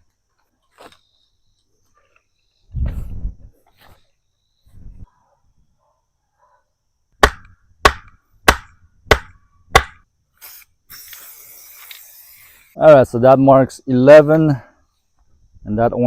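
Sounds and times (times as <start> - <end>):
steady hiss: 10.3 - 13.1.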